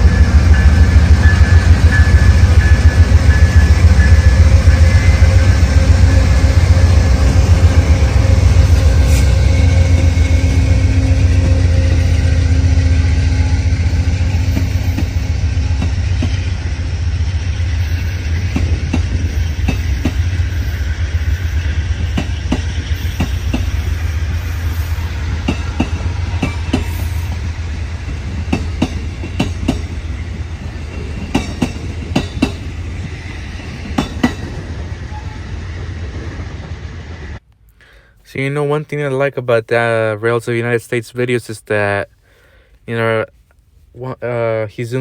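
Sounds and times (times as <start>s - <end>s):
train rumbling past: 0.0s - 37.4s
train wheels clacking over rails: 14.3s - 30.2s, 30.9s - 34.8s.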